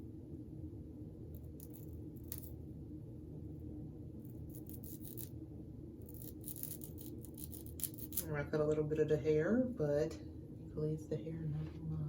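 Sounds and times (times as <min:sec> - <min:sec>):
steady low hum: 0:00.0 - 0:12.0
blade cutting lace: 0:04.3 - 0:05.3, 0:06.0 - 0:08.3.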